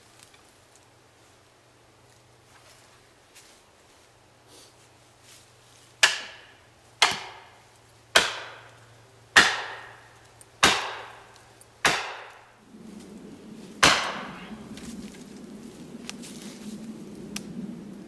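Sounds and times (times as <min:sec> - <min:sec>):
heavy blows into wood: 0:10.6 - 0:12.5, 0:13.7 - 0:15.2.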